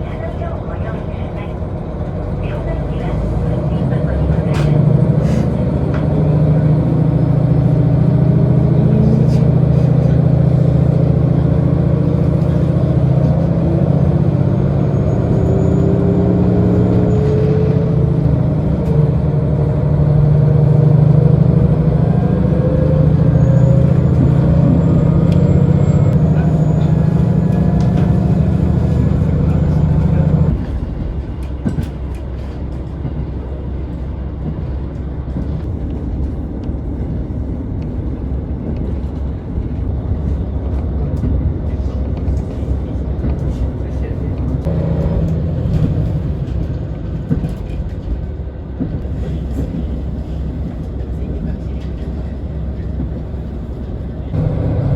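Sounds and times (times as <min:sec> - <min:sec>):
diesel train engine running: 0:00.0 - 0:54.9
train coasting rumble: 0:00.0 - 0:54.9
rising whine: 0:54.4 - 0:54.9.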